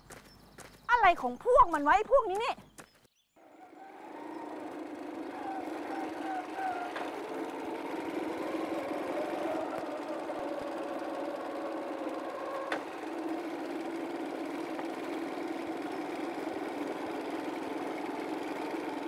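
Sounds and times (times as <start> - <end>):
small motorcycle engine running: 3.4 - 19.0.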